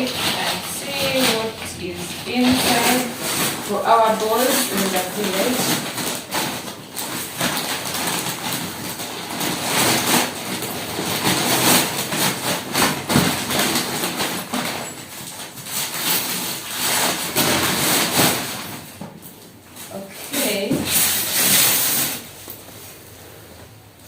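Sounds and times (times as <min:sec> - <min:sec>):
packaging rustling and crinkling: 0:00.0 - 0:23.8.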